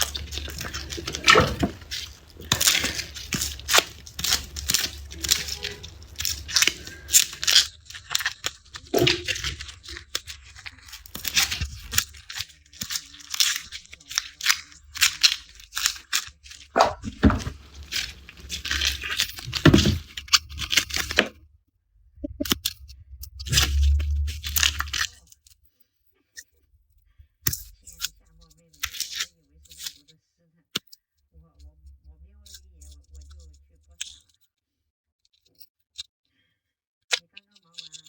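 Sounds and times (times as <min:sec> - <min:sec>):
garlic skins crackling and tearing: 0:00.0 - 0:21.3, 0:23.5 - 0:25.1.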